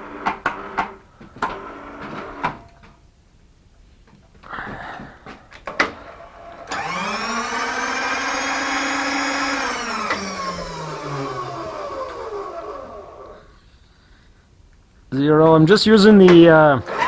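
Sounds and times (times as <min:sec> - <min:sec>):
electric motor whining: 0:06.1 - 0:13.6.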